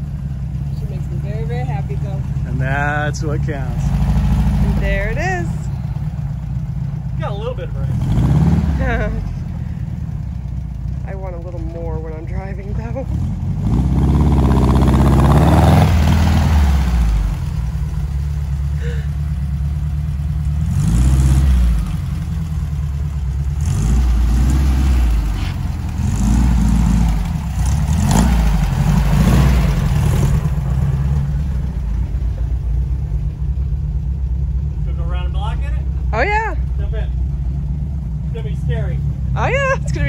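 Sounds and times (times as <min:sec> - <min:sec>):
dune buggy engine revving: 0:00.0 - 0:33.6, 0:34.6 - 0:40.0.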